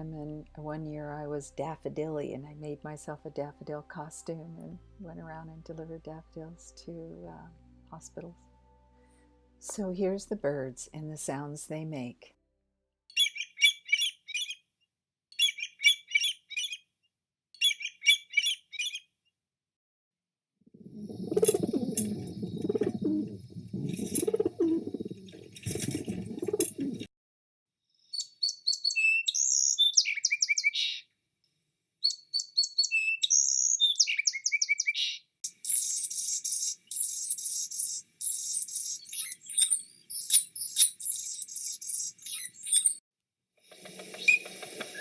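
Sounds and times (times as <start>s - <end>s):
high falling birdsong: 20.8s - 27.1s, 28.1s - 31.0s
low pulsing bird call: 20.9s - 25.4s
fast high bird chattering: 21.2s - 25.3s, 35.6s - 43.0s.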